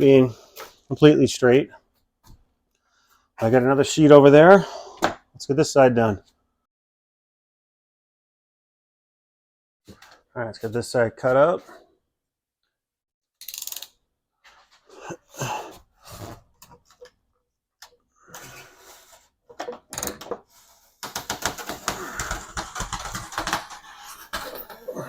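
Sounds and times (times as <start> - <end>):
blade cutting foam board: 20.8 - 25.0.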